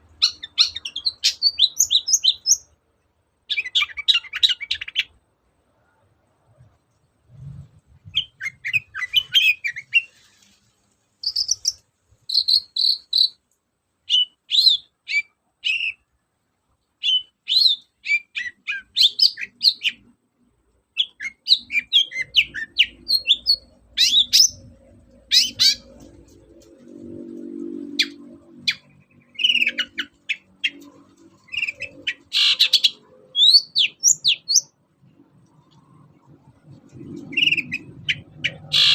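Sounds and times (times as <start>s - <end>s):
faint low hum: 0.0s - 38.9s.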